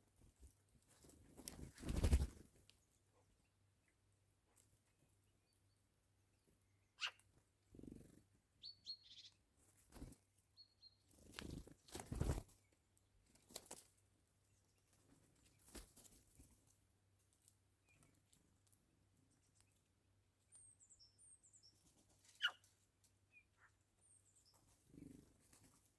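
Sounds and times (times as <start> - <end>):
faint bird calls: 6.9 - 7.2, 22.3 - 22.7.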